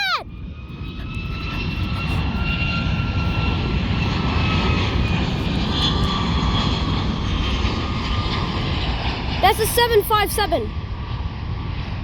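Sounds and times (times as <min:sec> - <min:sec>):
jet engines passing: 0:00.0 - 0:12.0.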